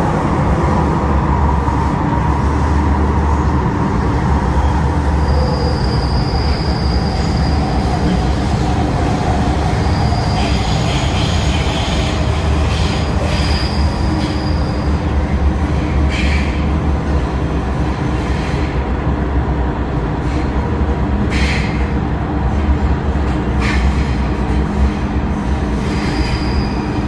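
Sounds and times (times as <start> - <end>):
train running low rumble: 0.0 - 27.0
wheel squeal: 4.6 - 8.2, 9.7 - 15.0, 25.8 - 27.0.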